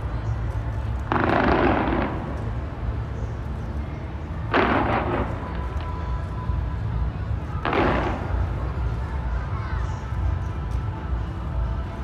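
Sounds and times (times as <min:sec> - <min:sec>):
fireworks booming: 0:01.0 - 0:02.8, 0:04.4 - 0:06.0, 0:07.6 - 0:08.7
loud fireworks bursts: 0:01.0 - 0:02.9, 0:04.4 - 0:06.0, 0:07.5 - 0:09.0.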